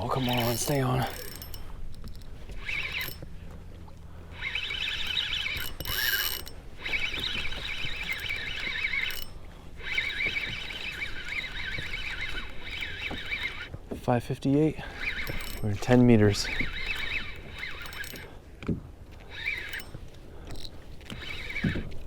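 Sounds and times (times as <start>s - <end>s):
fishing reel drag whining: 0.0s - 18.4s, 19.1s - 22.0s.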